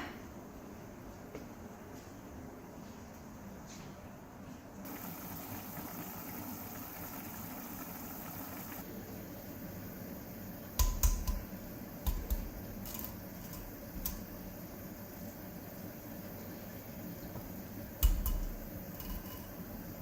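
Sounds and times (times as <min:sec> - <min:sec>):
steady hiss: 0:04.8 - 0:20.0.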